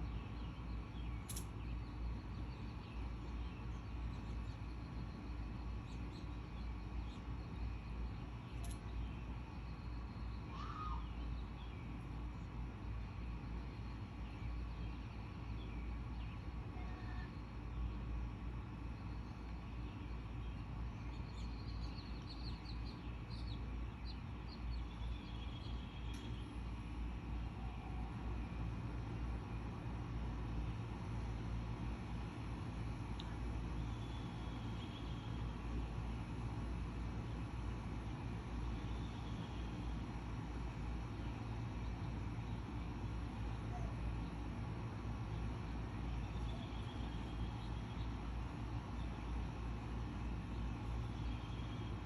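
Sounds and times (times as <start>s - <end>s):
faint bird chirps: 0.1s - 12.0s, 13.3s - 17.9s, 43.4s - 44.5s, 45.3s - 49.8s
sharp click: 1.3s - 1.6s
steady low rumble: 17.4s - 52.0s
bird chirping: 45.3s - 49.6s.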